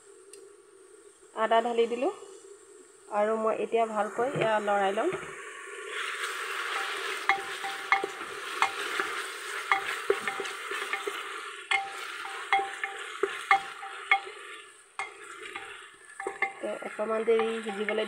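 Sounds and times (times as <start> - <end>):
onions sizzling in hot oil: 3.9 - 18.0
spatula knocking metal pot: 6.8 - 18.0.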